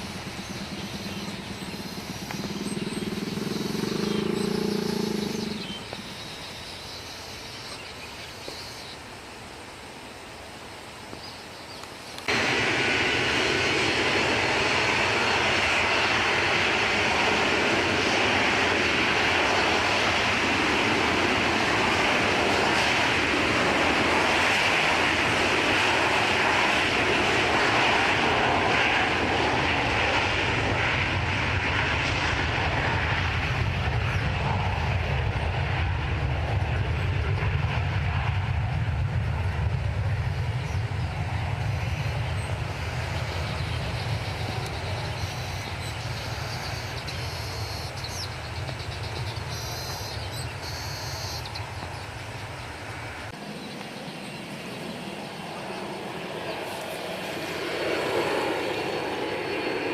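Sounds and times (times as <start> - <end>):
deep rumble: 0.0 - 6.1, 30.5 - 47.3
jet engine roar: 0.0 - 11.1, 11.8 - 59.9.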